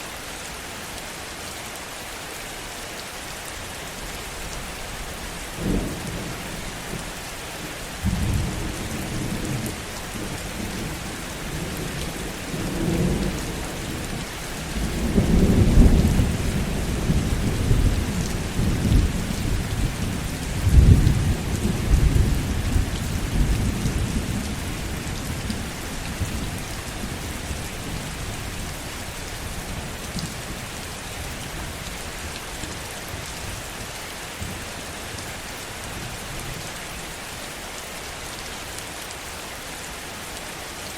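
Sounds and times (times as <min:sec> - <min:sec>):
heavy rain falling: 0:00.0 - 0:40.9
low thunder rumbling: 0:08.0 - 0:28.6.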